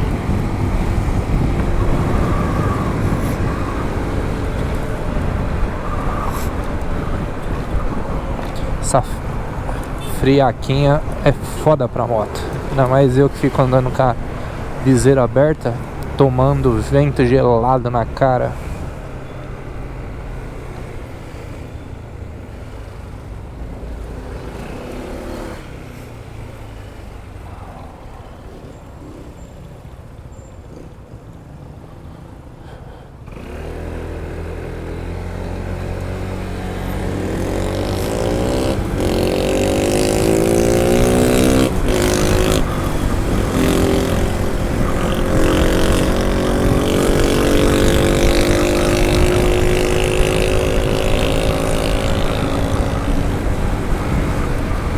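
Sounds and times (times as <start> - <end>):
wind noise: 0.0 - 21.2, 35.5 - 54.9
scooter engine accelerating: 0.0 - 31.2, 33.2 - 54.9.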